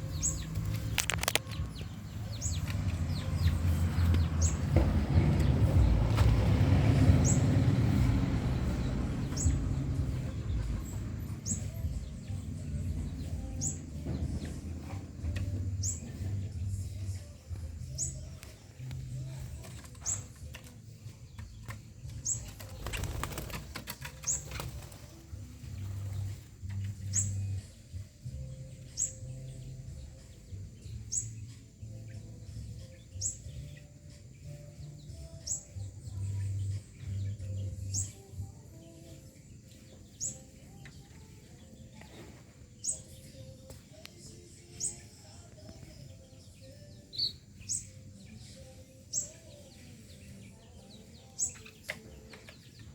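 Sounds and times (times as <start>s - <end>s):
bird high chirp: 0.0s - 6.0s, 7.1s - 25.2s, 25.9s - 52.9s
wing flaps: 22.4s - 25.4s.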